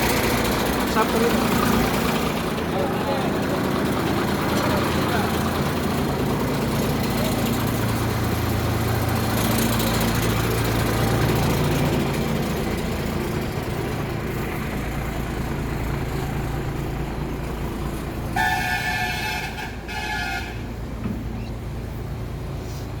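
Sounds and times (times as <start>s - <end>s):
truck diesel engine running: 0.0s - 23.0s
truck horn blasts: 18.3s - 20.8s.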